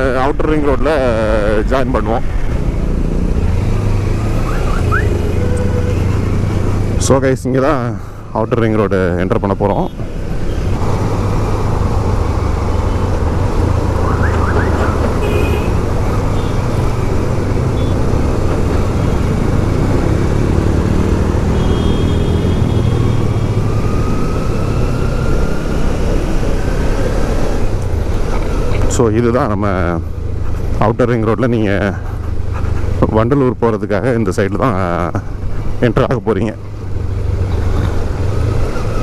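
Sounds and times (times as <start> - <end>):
motorcycle engine: 1.6 - 7.2, 9.9 - 29.0.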